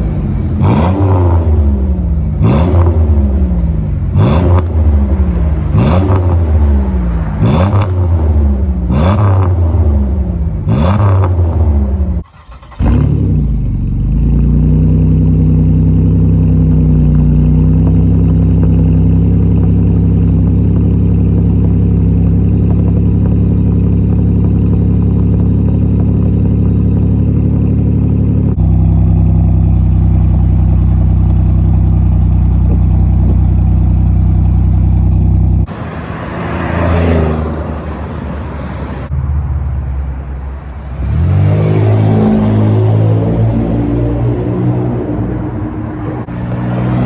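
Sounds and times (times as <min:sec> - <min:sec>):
car exhaust rumbling: 0:00.0 - 0:47.0
engine revving up: 0:00.6 - 0:13.6, 0:35.6 - 0:39.2, 0:40.9 - 0:47.0.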